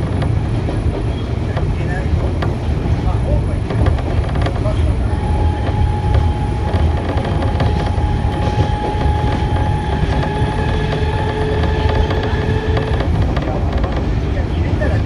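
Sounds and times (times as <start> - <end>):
train wheels rumbling on rail: 0.0 - 15.0
thin whining tones: 4.6 - 13.2.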